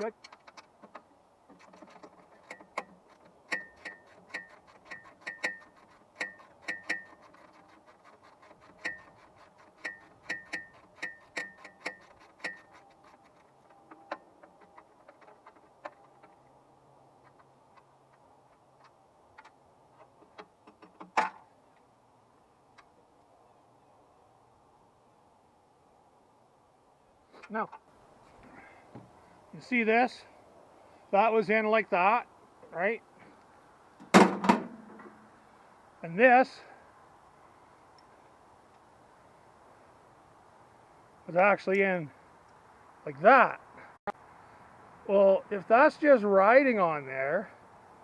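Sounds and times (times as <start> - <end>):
hand tools tapping metal: 0.0 - 16.5
metal clank: 34.0 - 35.2.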